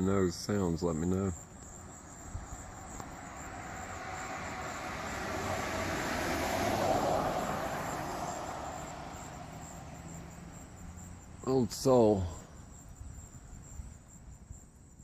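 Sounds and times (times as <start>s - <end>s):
insects chirring: 0.0s - 15.0s
vehicle passing by: 1.8s - 12.6s.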